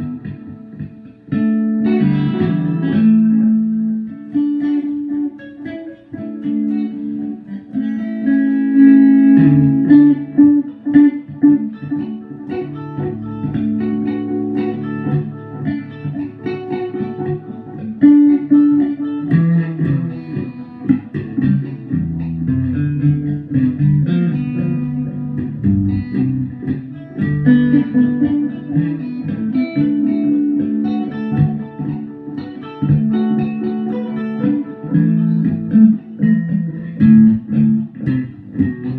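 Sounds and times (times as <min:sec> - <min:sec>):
guitar picking single notes: 0:00.0 - 0:38.9
bass notes: 0:08.7 - 0:16.3, 0:20.9 - 0:32.2, 0:34.4 - 0:38.9.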